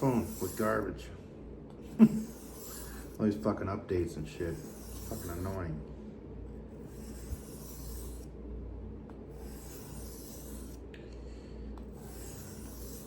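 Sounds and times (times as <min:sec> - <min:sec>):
knife scraping on whetstone: 0:00.0 - 0:00.8, 0:02.0 - 0:03.2, 0:04.4 - 0:05.6, 0:06.8 - 0:08.3, 0:09.4 - 0:10.8, 0:11.9 - 0:13.0.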